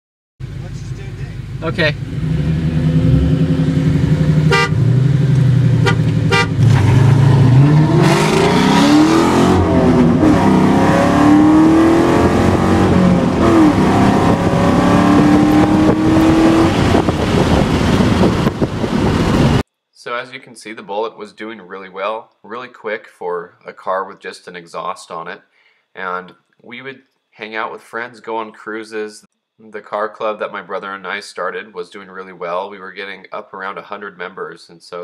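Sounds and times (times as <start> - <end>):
car engine accelerating: 0.4 - 19.6.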